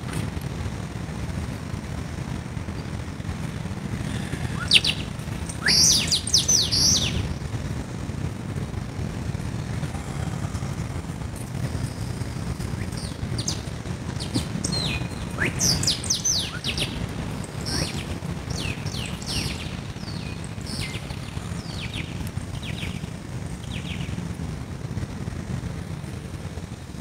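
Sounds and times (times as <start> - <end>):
steady low rumble: 0.0 - 27.0
birds chirping: 2.6 - 7.9, 9.6 - 24.4.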